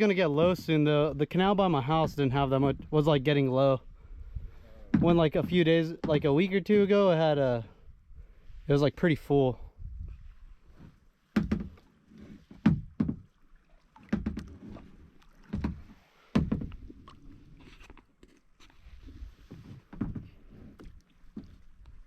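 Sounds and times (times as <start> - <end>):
paddle knocks and splashes: 4.9 - 6.5, 10.8 - 17.9, 18.8 - 22.0.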